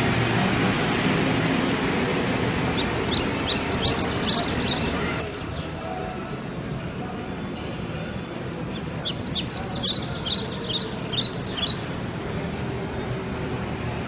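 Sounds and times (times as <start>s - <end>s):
low background noise: 0.0s - 14.0s
bird chirping: 2.7s - 6.1s, 8.7s - 12.0s.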